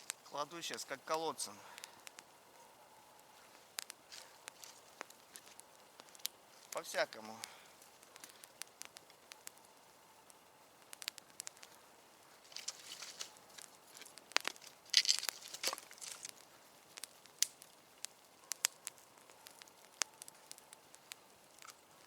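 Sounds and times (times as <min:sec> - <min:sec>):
campfire crackling and popping: 0:00.0 - 0:22.0
sticks rustling and scraping: 0:03.2 - 0:09.2, 0:11.0 - 0:17.7.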